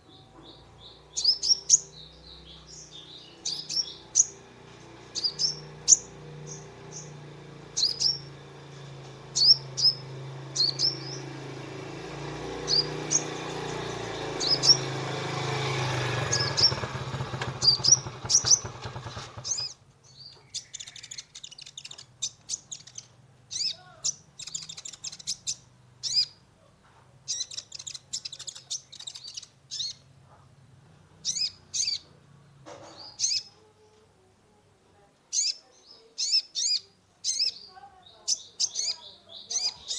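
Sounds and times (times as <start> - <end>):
sunbird chirping: 0.0 - 26.4, 27.3 - 30.1, 35.3 - 39.9.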